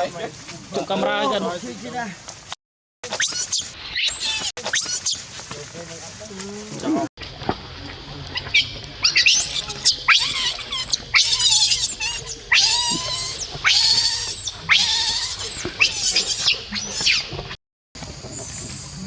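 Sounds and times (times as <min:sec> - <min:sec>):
baby monkey screeching cries: 0:03.2 - 0:05.2, 0:08.5 - 0:17.2.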